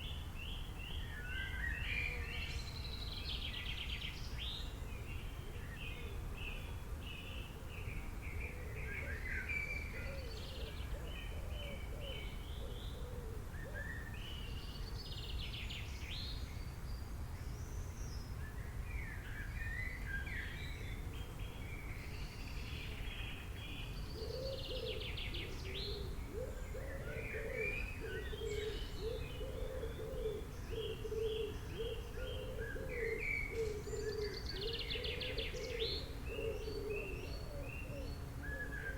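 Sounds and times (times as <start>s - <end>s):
birds chirping and trilling: 19.0s - 38.9s.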